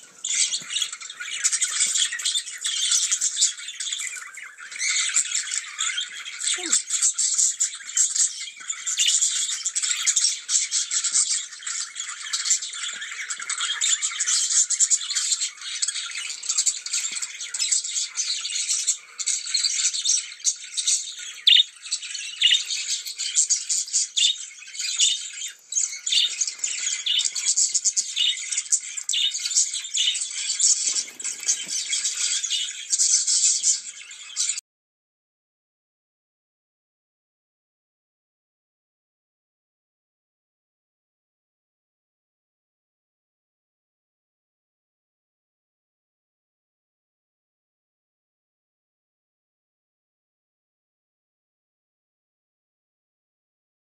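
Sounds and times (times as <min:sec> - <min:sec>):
budgies warbling and chattering: 0:00.0 - 0:34.6.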